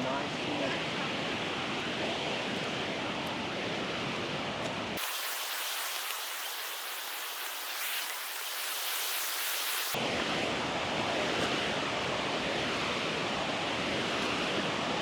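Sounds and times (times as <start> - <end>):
flowing water rushing: 5.0 - 10.0.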